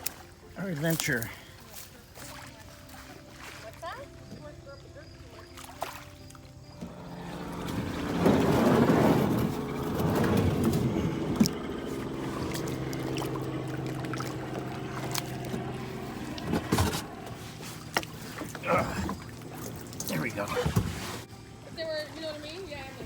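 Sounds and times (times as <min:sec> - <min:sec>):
steady low hum: 0:06.7 - 0:23.0
kayak hull scraping: 0:06.8 - 0:23.0
water rushing: 0:06.8 - 0:23.0.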